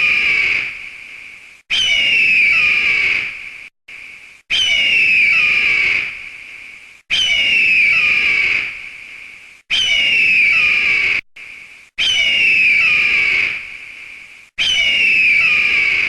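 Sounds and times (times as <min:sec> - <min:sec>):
eagle screaming: 0:00.0 - 0:00.8, 0:01.7 - 0:03.4, 0:04.5 - 0:06.2, 0:07.1 - 0:08.8, 0:09.7 - 0:11.2, 0:12.0 - 0:13.7, 0:14.6 - 0:16.0.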